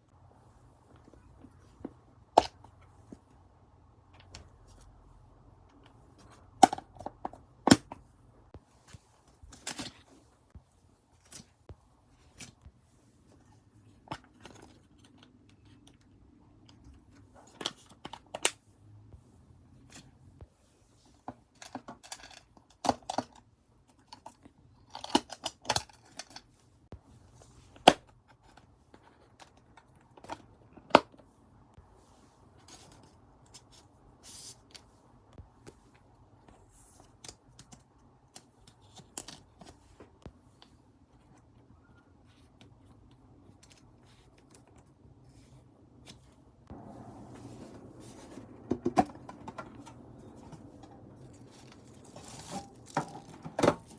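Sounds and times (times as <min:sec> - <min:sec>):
plastic sleeves and paper crinkling: 0:41.2 - 0:53.9.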